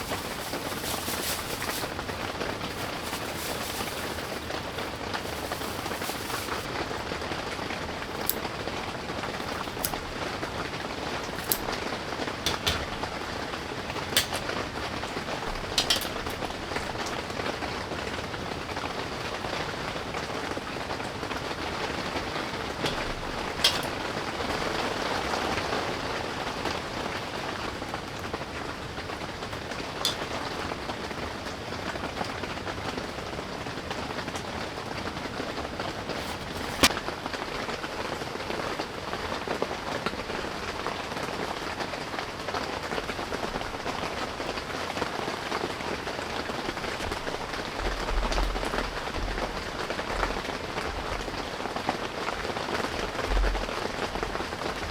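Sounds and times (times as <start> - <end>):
sharp taps of heavy raindrops: 0.0 - 17.6, 20.9 - 37.0
steady rain falling: 0.0 - 54.9.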